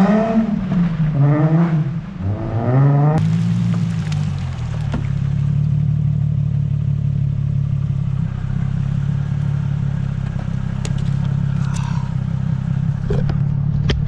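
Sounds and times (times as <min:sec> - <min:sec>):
car engine running: 0:03.2 - 0:14.0.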